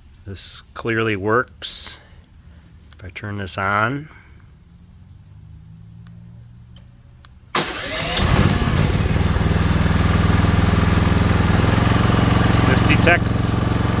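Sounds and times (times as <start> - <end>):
generator engine running: 7.5 - 14.0.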